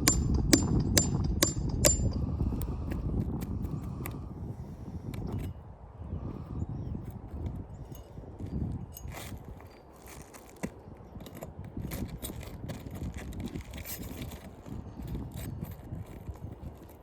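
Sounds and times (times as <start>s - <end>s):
scraping and clicks of shingles: 8.5s - 17.0s.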